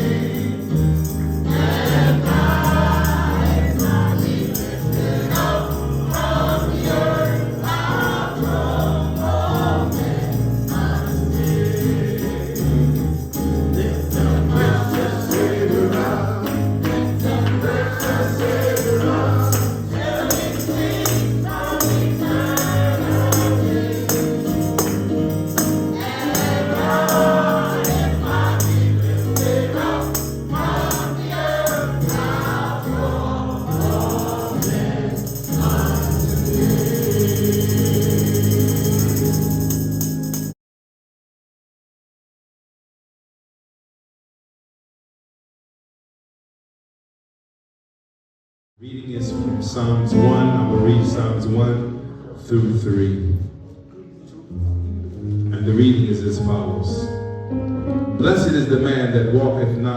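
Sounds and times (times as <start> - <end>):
gospel choir singing: 0.0 - 40.1
tambourine shaken: 0.0 - 40.6.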